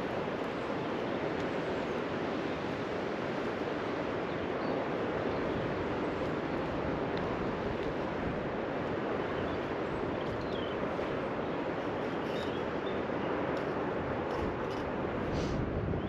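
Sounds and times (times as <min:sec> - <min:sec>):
faint high bird chirps: 0:12.2 - 0:13.0.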